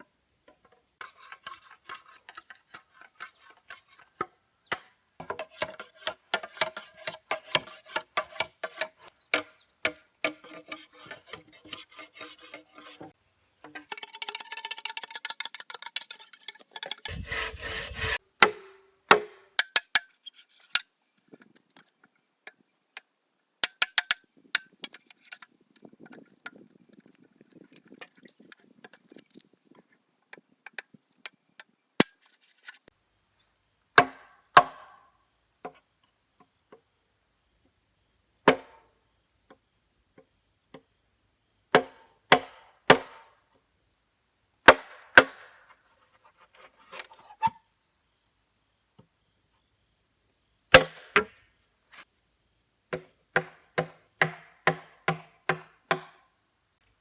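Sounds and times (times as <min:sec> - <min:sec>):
hand tool striking wood: 0:01.0 - 0:13.0, 0:16.8 - 0:20.8, 0:53.4 - 0:56.1
scraping: 0:13.8 - 0:18.2.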